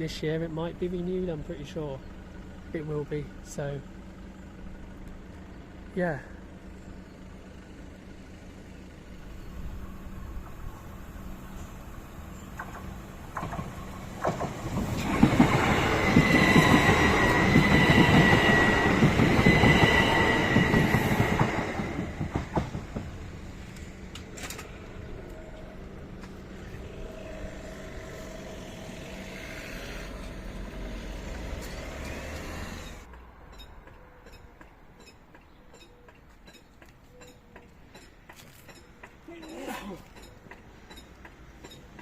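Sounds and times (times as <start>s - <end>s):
train passing with wheel noise: 0.0s - 42.0s
steady high whine: 9.0s - 31.2s.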